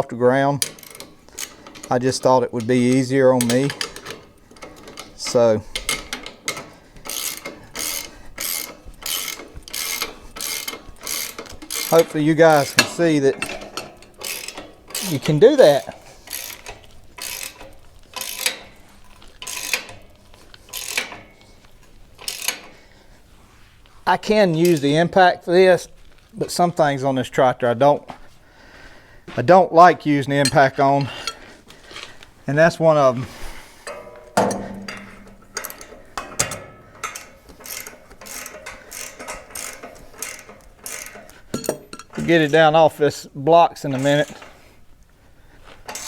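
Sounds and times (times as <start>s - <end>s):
ratchet wrench pawl clicking: 0.6s - 22.8s, 35.6s - 36.2s, 37.0s - 42.2s.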